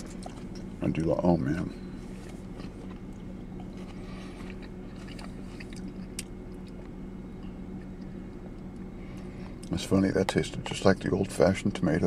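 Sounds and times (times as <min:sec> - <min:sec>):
person chewing: 0:00.0 - 0:00.7, 0:02.1 - 0:09.7
steady low hum: 0:00.0 - 0:12.0.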